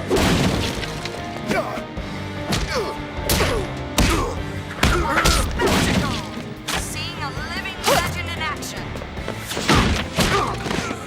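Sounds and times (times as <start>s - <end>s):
dramatic music score: 0.0s - 11.0s
cartoon punches and thuds: 0.1s - 0.8s, 2.5s - 6.3s, 9.5s - 10.9s.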